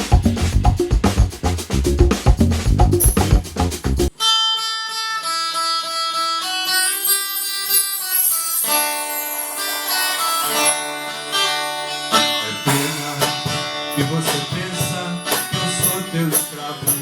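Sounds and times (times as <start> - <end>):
bass notes: 0.0 - 4.1
guitar picking a melody: 4.2 - 17.0.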